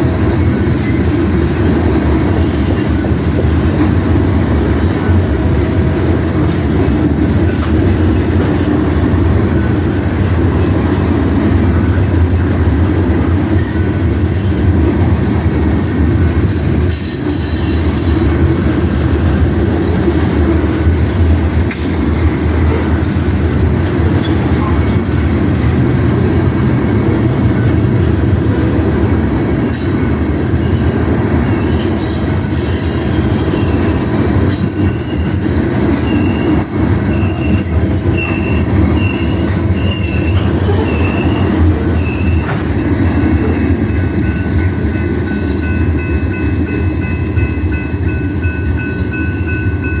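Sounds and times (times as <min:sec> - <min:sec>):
freight train rumbling: 0:00.0 - 0:50.0
train wheels squealing: 0:11.8 - 0:14.7, 0:15.4 - 0:19.4, 0:27.2 - 0:50.0.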